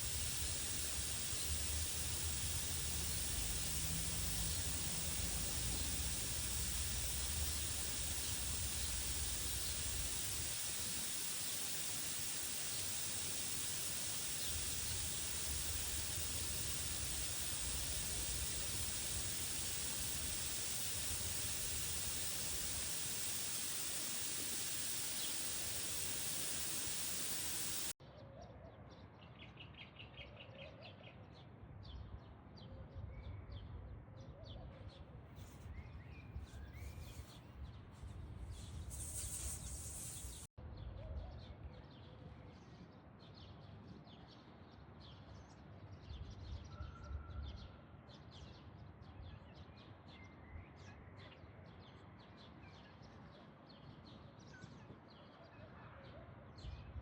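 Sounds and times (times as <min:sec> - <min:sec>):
loud rushing hiss: 0:00.0 - 0:28.0, 0:38.5 - 0:40.5
small birds chirping: 0:00.0 - 0:28.0, 0:38.4 - 0:40.5.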